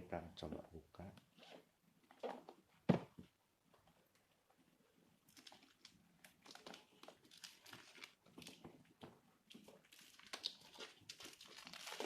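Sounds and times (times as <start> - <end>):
rustling and crinkling wrapping: 5.2 - 12.0.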